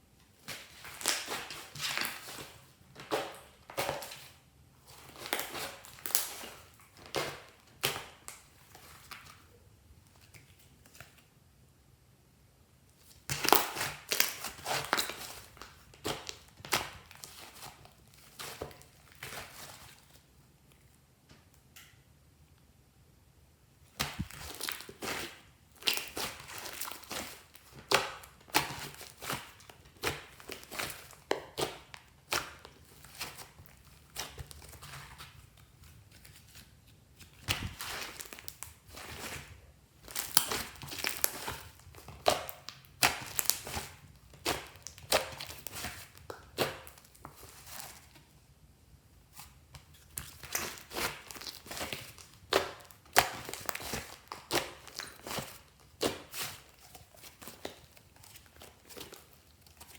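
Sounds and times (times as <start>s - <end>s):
slime crackling and popping: 0.5s - 2.4s, 5.0s - 8.5s, 13.2s - 17.8s, 23.9s - 35.4s, 37.3s - 48.1s, 50.0s - 59.9s.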